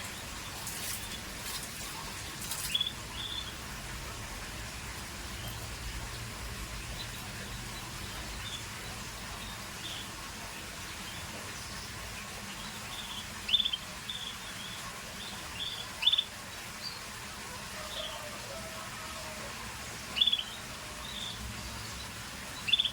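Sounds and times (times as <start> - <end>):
canary chirping: 2.7 - 3.6, 12.6 - 16.3, 20.2 - 21.4, 22.6 - 22.9.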